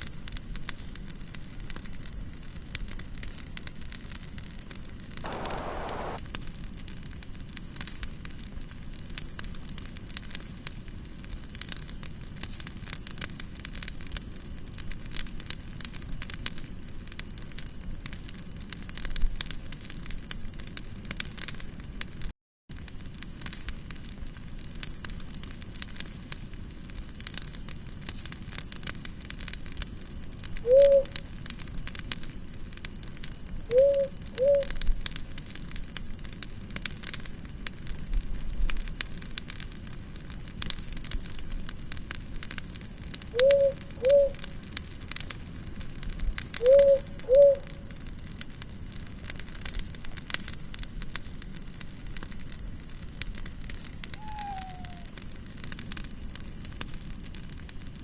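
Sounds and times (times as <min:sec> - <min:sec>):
campfire crackling and popping: 0:00.0 - 0:58.0
cricket chirping: 0:00.8 - 0:02.7, 0:25.7 - 0:26.7, 0:28.1 - 0:28.8, 0:39.3 - 0:40.9, 0:43.4 - 0:44.3.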